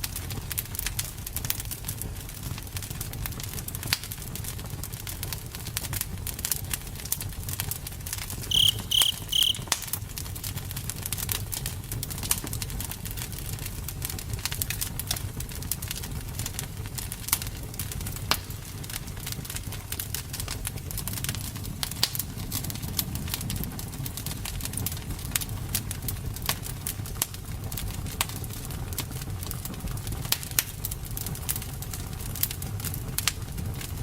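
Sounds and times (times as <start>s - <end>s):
short high chirps: 8.5s - 9.7s
campfire crackling and popping: 10.8s - 34.0s.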